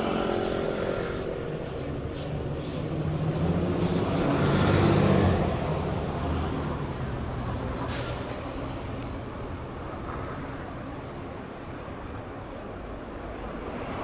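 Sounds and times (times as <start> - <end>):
air brakes hissing: 0.0 - 5.6, 7.8 - 8.4
heavy diesel vehicle passing: 0.0 - 11.4.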